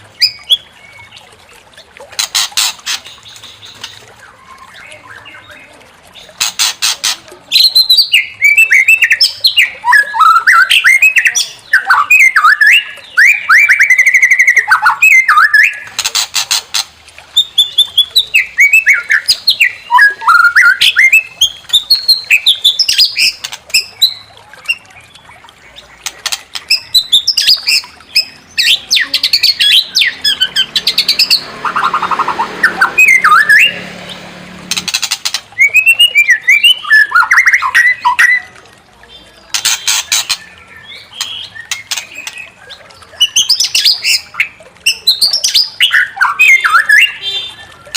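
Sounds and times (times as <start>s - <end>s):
bird singing whistles and trills: 0.2s - 1.3s, 7.6s - 15.9s, 17.4s - 25.8s, 35.3s - 38.6s, 39.9s - 47.9s.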